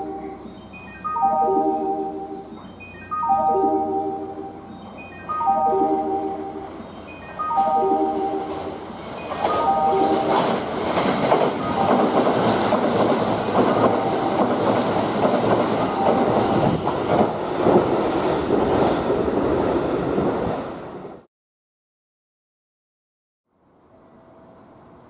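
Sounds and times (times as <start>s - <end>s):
train wheel and rail noise: 0.0s - 21.3s, 23.6s - 25.0s
wheels clacking over rail joints: 8.4s - 19.3s.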